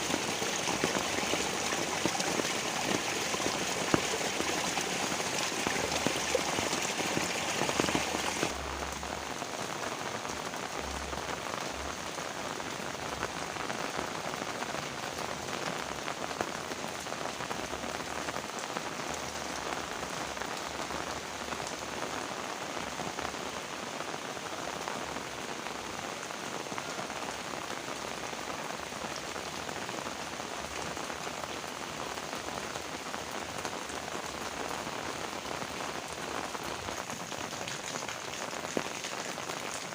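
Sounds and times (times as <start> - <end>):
wash of water: 0.0 - 8.5
heavy rain: 0.0 - 39.9.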